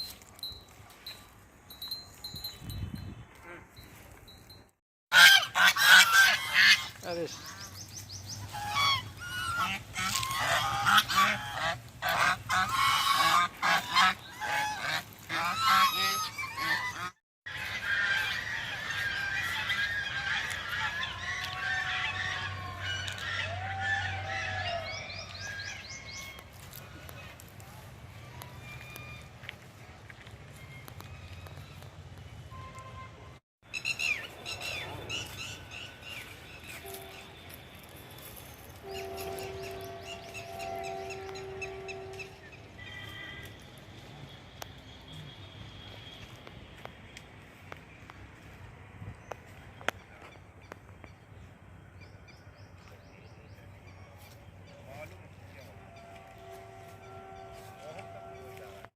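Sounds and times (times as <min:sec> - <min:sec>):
birds calling: 0:05.1 - 0:27.6, 0:33.7 - 0:43.6.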